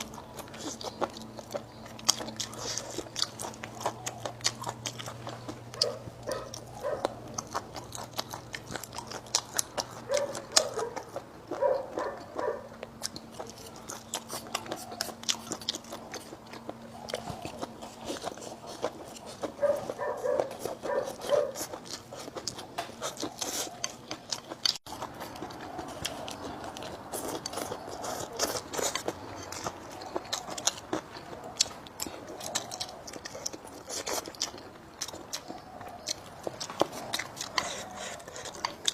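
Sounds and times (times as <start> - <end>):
chewing crunchy food: 0.0 - 38.9.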